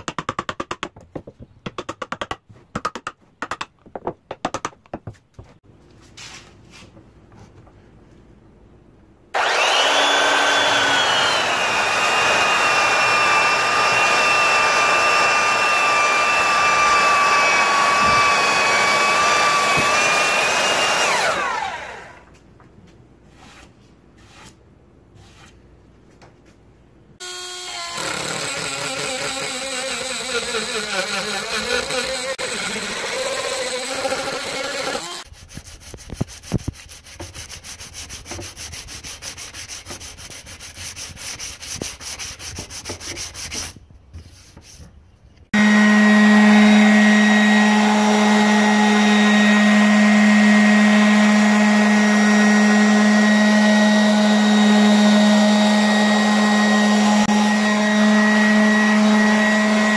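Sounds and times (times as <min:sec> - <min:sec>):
power tool motor whine: 0:09.4 - 0:22.3, 0:27.2 - 0:35.2, 0:45.5 - 0:59.9
fast rasping: 0:27.9 - 0:43.7.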